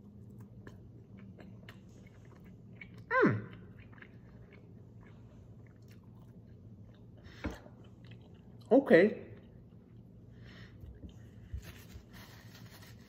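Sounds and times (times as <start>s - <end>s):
person chewing crunchy food: 0.0s - 8.7s.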